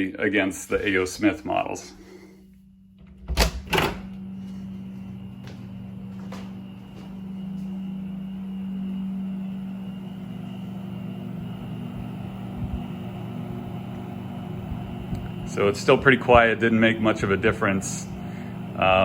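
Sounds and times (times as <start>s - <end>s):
heat pump humming: 0.0s - 19.0s.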